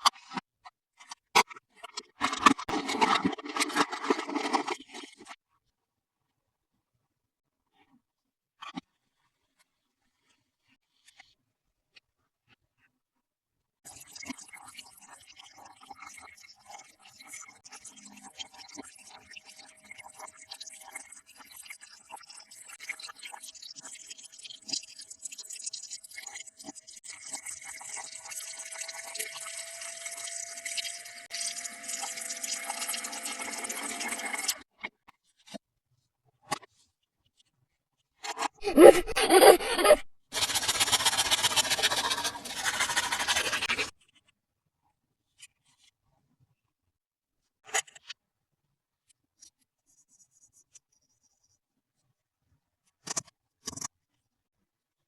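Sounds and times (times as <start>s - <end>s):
scratchy packaging rasp: 38.6s - 43.9s.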